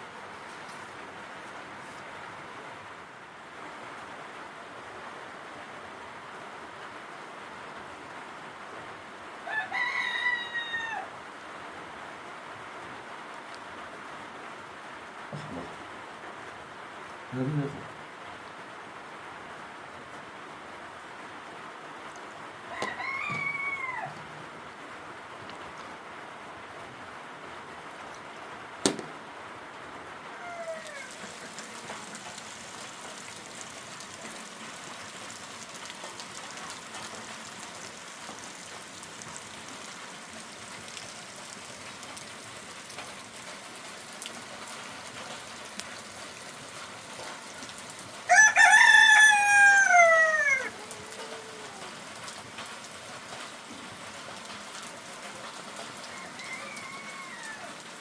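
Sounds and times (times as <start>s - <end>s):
rain hissing: 0.0s - 58.0s
rooster crowing: 9.4s - 11.2s, 22.6s - 24.5s, 30.3s - 32.2s, 48.3s - 52.0s, 55.9s - 58.0s.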